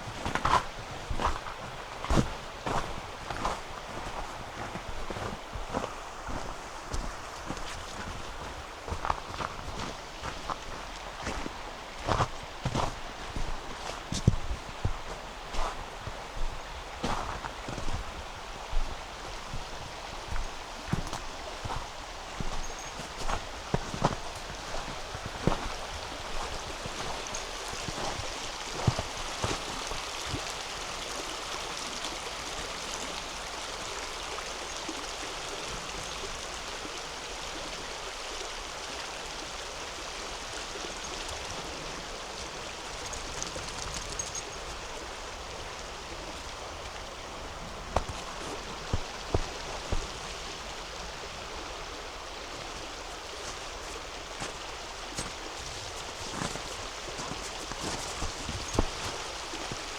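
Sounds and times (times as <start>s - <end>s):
river water rushing: 0.0s - 59.9s
footsteps on snow: 0.1s - 30.4s, 47.5s - 50.5s, 52.8s - 59.9s.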